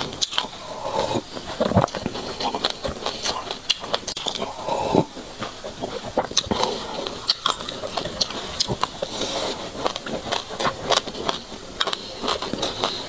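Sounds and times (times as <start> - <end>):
chewing crunchy seeds: 0.0 - 13.0.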